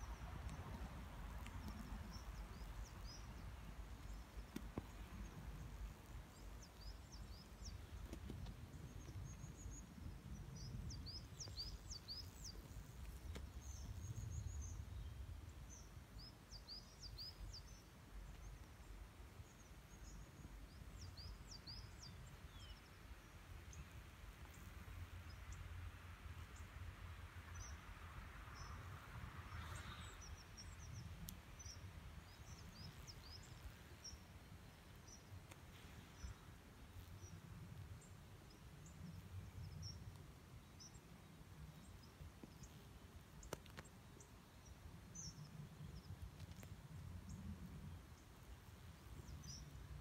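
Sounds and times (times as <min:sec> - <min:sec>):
small birds chirping: 0:00.0 - 0:25.8, 0:29.5 - 0:50.0
faint click: 0:00.4 - 0:02.4, 0:35.4 - 0:35.8, 0:43.4 - 0:43.9, 0:46.3 - 0:46.8.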